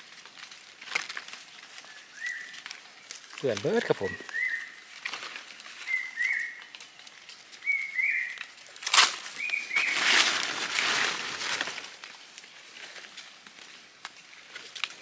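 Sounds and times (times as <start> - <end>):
loud rustling: 8.8 - 12.1.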